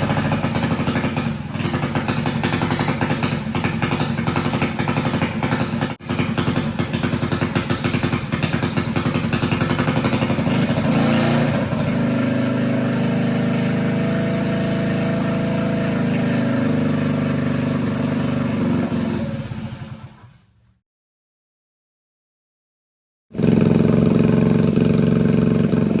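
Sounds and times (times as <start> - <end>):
mini bike engine running: 0.0 - 20.3, 23.4 - 26.0.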